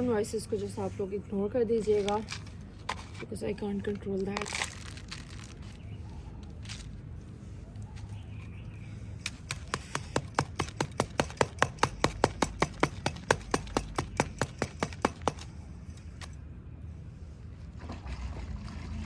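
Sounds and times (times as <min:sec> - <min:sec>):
rapid sharp tapping on mould: 0:09.5 - 0:15.4.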